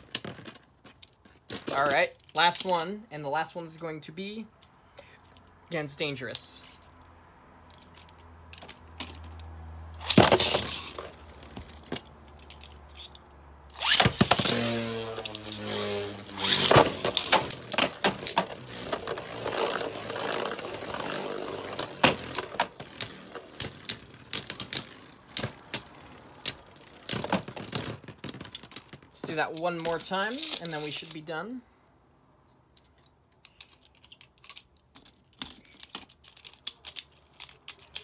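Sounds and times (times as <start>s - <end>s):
spinning top launch whirring: 13.7s - 23.7s.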